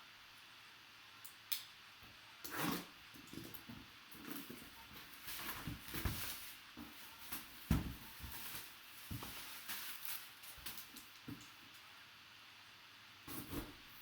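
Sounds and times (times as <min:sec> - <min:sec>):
shrink wrap crinkling and tearing: 0:04.2 - 0:11.6
box handling knocks: 0:07.7 - 0:08.3.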